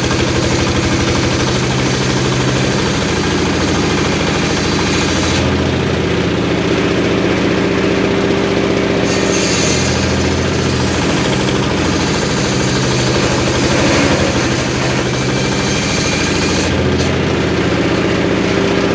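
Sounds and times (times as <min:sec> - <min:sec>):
sawmill engine running: 0:00.0 - 0:18.9.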